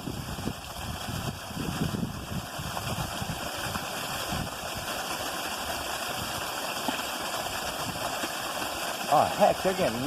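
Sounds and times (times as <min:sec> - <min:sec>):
wind buffeting microphone: 0:00.0 - 0:04.6.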